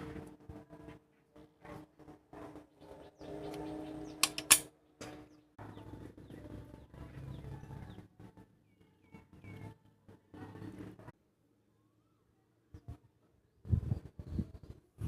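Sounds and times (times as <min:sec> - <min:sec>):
birds chirping: 0:02.7 - 0:09.7.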